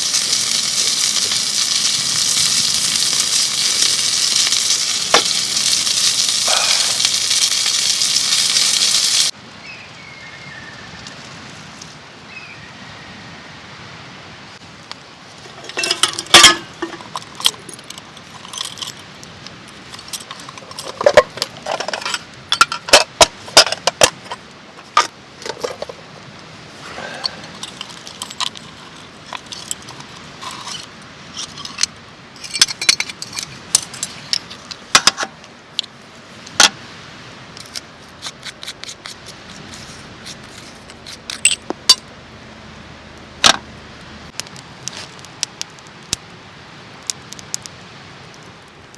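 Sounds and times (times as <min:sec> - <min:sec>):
metallic clinks and clatters: 0:15.4 - 0:19.1, 0:27.4 - 0:34.5.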